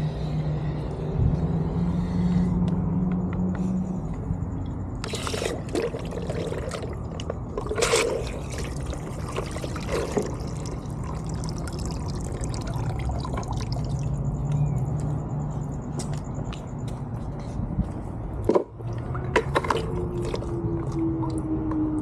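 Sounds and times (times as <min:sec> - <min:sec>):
water pouring and trickling: 0:05.0 - 0:14.4, 0:18.8 - 0:22.0.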